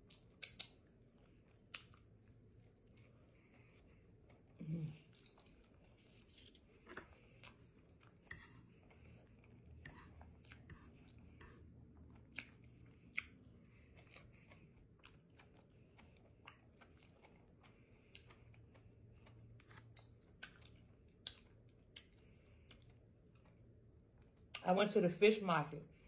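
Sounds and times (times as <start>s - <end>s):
close chewing: 0.0s - 24.6s
wet mouth clicks: 0.1s - 0.8s.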